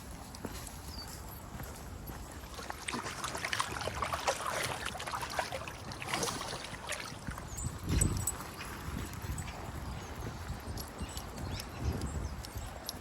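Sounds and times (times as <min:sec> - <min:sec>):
footsteps clicking: 0:00.0 - 0:02.8
dogs' paws tapping: 0:07.3 - 0:13.0.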